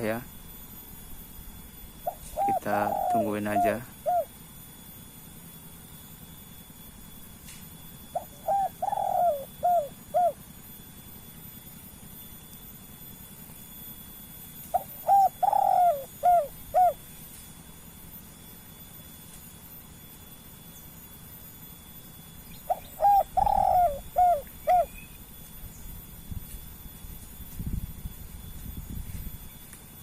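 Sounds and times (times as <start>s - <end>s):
dove cooing: 2.0s - 4.4s, 8.1s - 10.5s, 14.7s - 17.0s, 22.5s - 25.1s.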